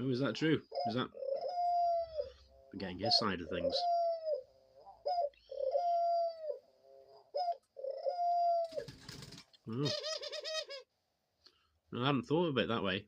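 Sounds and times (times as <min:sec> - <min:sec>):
dove cooing: 0:00.6 - 0:10.9.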